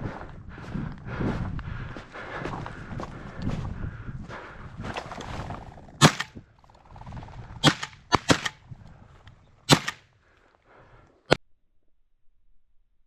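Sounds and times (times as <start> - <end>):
shotgun shots: 6.0 - 6.4, 7.6 - 8.6, 9.7 - 10.0.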